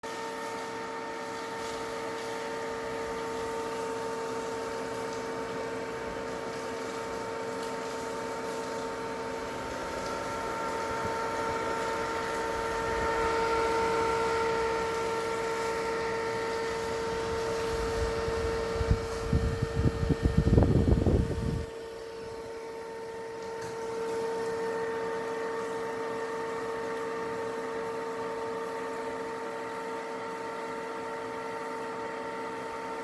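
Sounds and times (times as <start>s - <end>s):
small cooling fans whining: 0.0s - 33.0s.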